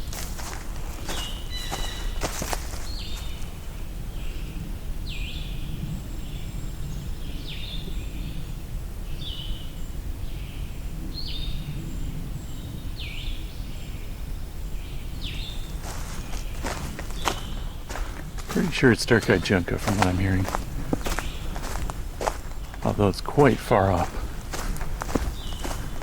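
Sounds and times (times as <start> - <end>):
distant bird trill: 0.4 - 3.6, 15.2 - 26.0
birdsong high slurred phrases: 15.8 - 26.0.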